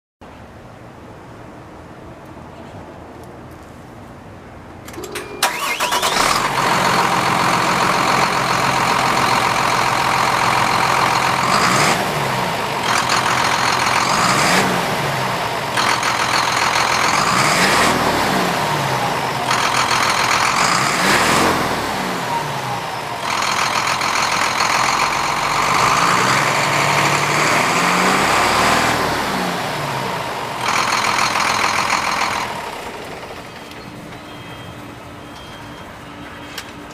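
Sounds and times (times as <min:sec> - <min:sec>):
diesel truck engine revving: 0:05.4 - 0:33.8.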